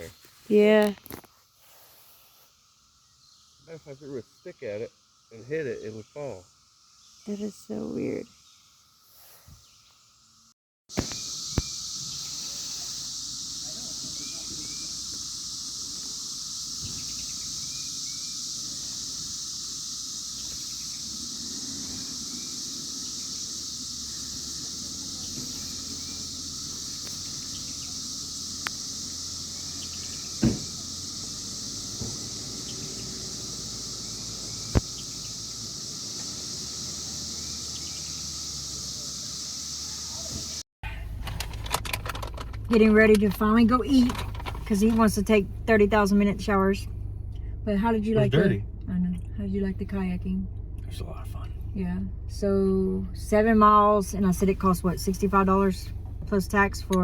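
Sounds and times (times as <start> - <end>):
insects buzzing: 0.0 - 40.6, 42.0 - 48.6, 51.6 - 57.0
sharp knocks: 30.4 - 30.8.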